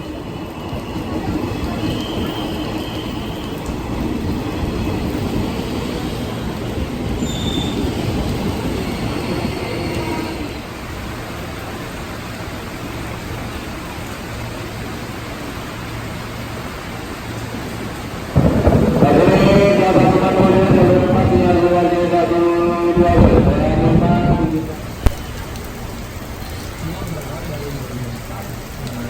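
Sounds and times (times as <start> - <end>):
electric train rumbling on rails: 0.0 - 27.2
high wheel squeals: 7.2 - 10.8
loud pitched tones: 18.4 - 24.8.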